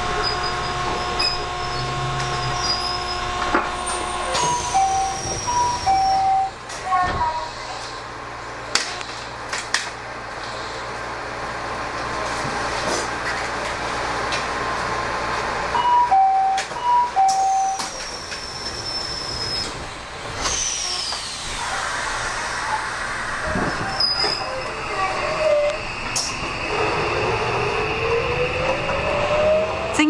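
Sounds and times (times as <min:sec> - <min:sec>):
two-tone door chime: 0:04.3 - 0:06.6, 0:15.8 - 0:17.9.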